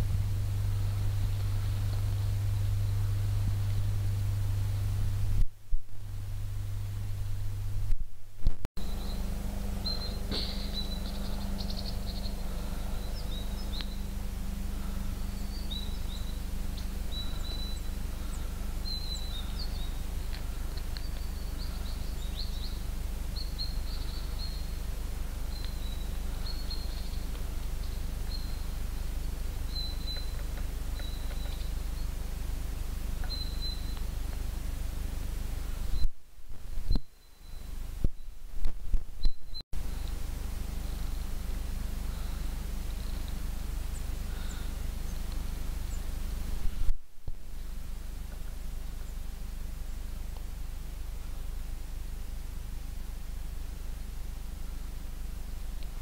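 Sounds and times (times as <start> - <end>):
low outdoor rumble: 0.0 - 56.0
small birds chirping: 0.1 - 5.2, 8.8 - 36.1, 36.9 - 38.4, 39.2 - 46.9.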